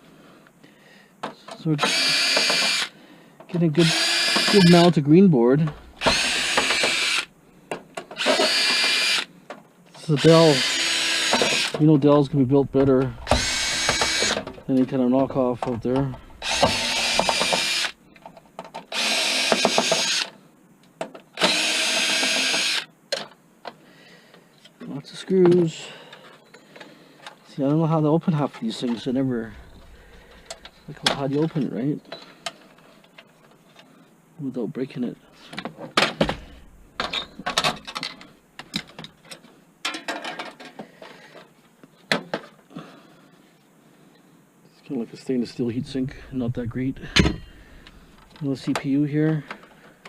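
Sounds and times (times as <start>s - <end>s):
power drill backing out screws: 1.8s - 2.9s, 3.8s - 5.0s, 5.6s - 7.3s, 8.2s - 9.3s, 10.1s - 11.9s, 12.8s - 17.9s, 18.9s - 20.3s.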